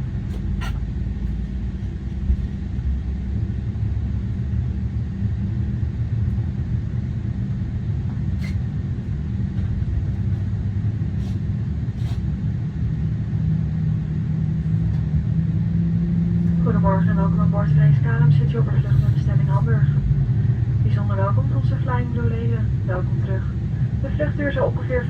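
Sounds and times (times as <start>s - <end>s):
air-conditioning hum: 0.0s - 25.0s
aircraft cabin rumble: 0.0s - 25.0s
steady hum: 0.0s - 25.0s.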